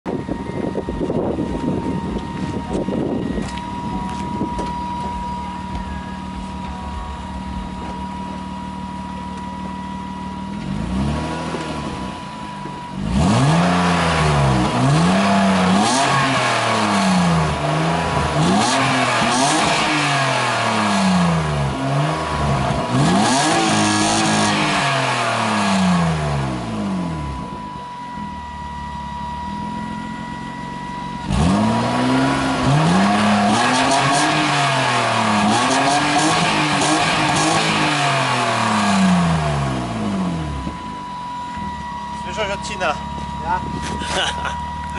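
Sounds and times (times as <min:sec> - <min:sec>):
car engine idling and revving: 0:00.0 - 0:44.9.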